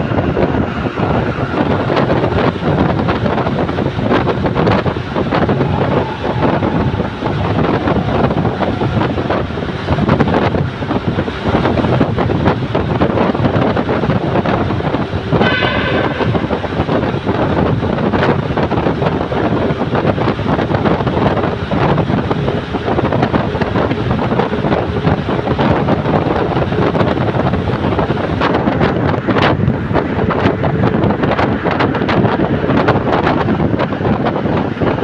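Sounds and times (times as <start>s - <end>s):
moving vehicle rumble: 0.0s - 35.0s
wind buffeting microphone: 0.0s - 35.0s
brief high tone: 15.4s - 17.4s.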